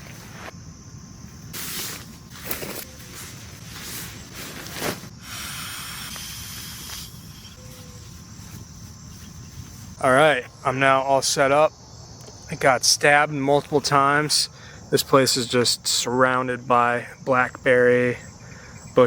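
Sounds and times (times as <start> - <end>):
steady hiss: 1.2 - 11.7
short rustles: 1.6 - 5.1.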